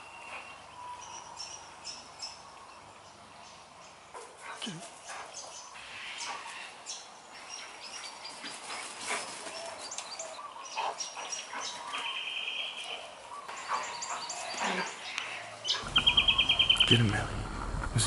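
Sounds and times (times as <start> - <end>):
birds chirping and calling: 0.0 - 18.0
bird trill: 15.6 - 17.0.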